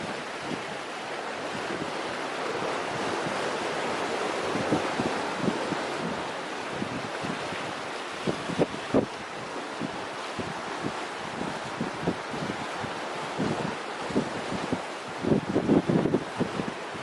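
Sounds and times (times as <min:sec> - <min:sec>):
sea surf washing on beach: 0:00.0 - 0:17.0
wind buffeting microphone: 0:00.0 - 0:17.0.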